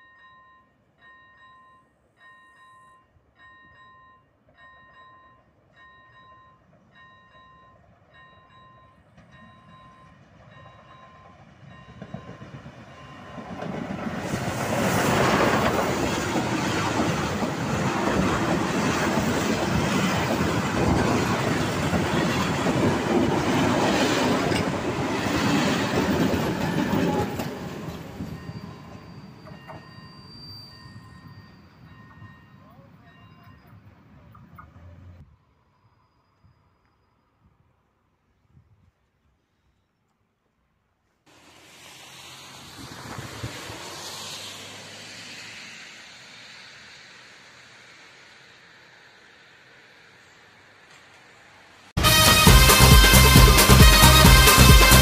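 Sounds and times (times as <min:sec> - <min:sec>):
level-crossing warning bell: 0:00.0 - 0:13.8, 0:19.8 - 0:35.0
passenger train rumbling past: 0:03.4 - 0:35.2, 0:41.3 - 0:55.0.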